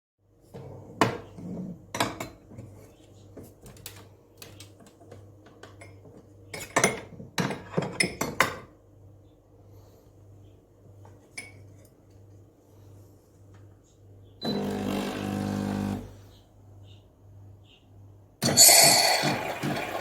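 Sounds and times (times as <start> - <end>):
kitchenware clinking and clattering: 0.9 - 2.8, 5.6 - 8.8, 18.4 - 20.0.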